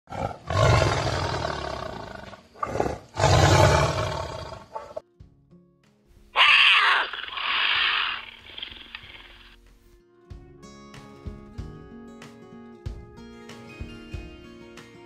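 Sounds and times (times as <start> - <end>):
big cat roaring: 0.1 - 5.0
hissing snarl: 0.1 - 5.0, 6.4 - 9.4
faint background music: 9.4 - 15.0.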